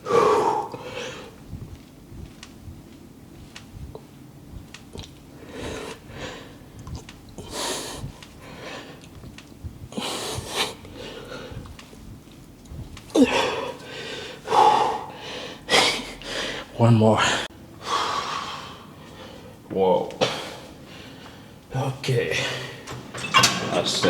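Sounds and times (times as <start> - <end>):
man breathing hard: 0.0 - 1.4, 5.3 - 6.8, 7.4 - 9.0, 9.9 - 11.8, 13.1 - 19.6.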